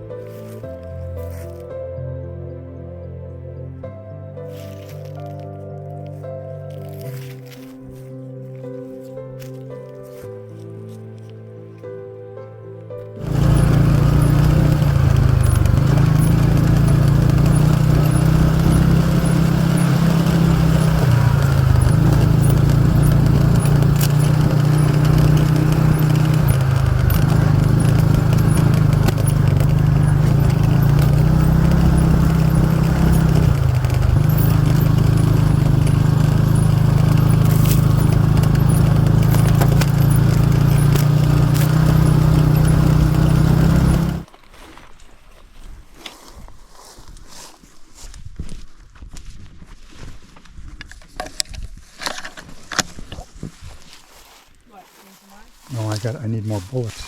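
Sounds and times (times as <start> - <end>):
buggy engine running: 13.2 - 44.3.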